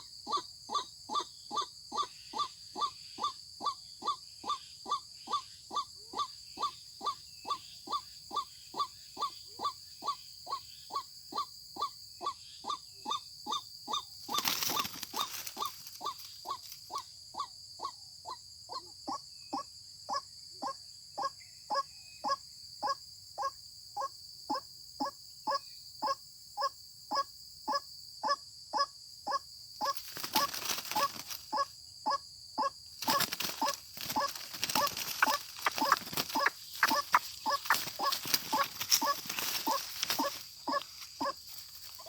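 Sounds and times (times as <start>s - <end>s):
waterhen calling: 29.8s - 42.0s
rustling: 33.0s - 42.0s.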